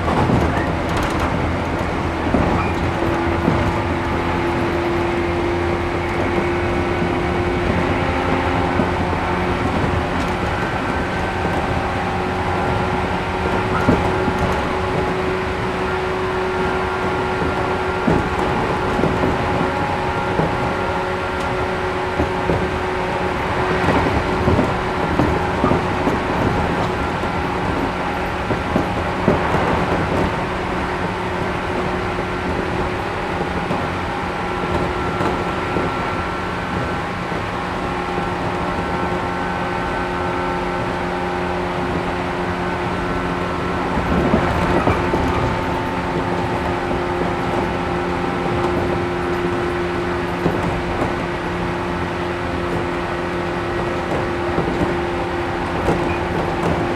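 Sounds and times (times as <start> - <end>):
train cabin rumble: 0.0 - 56.9
wheels knocking on track: 0.0 - 56.9.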